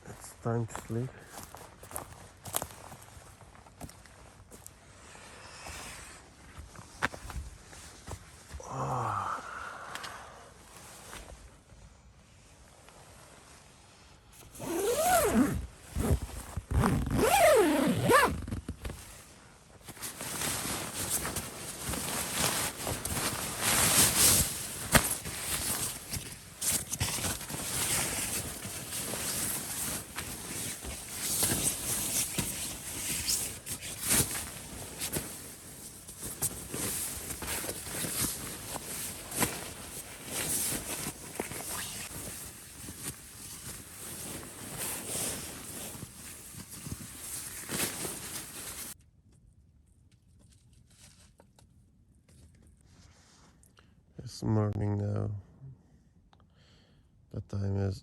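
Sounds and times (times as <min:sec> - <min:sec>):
zipper pulled: 0:14.4 - 0:19.0, 0:21.9 - 0:49.0.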